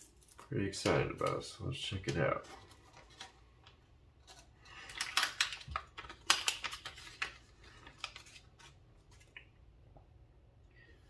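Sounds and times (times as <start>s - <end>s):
packaging rustling: 1.2s - 9.4s.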